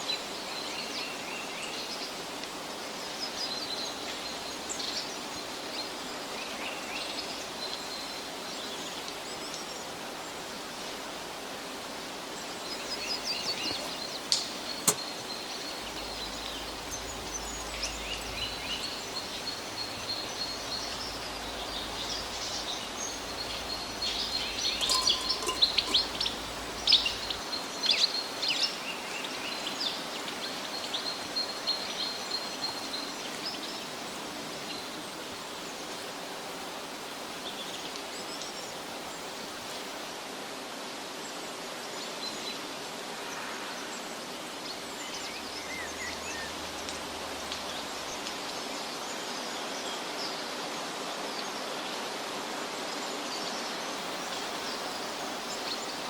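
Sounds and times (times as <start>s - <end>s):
songbirds chirping: 0.0s - 40.1s, 53.3s - 56.0s
steady background hiss: 0.0s - 56.0s.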